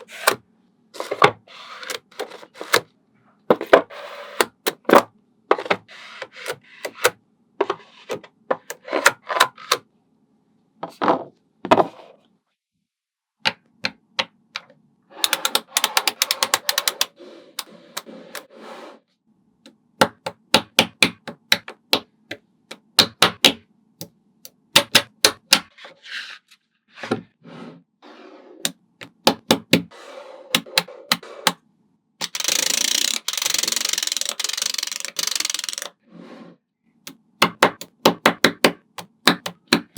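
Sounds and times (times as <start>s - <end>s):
magnetic balls clicking together: 15.2s - 17.1s, 32.2s - 35.9s.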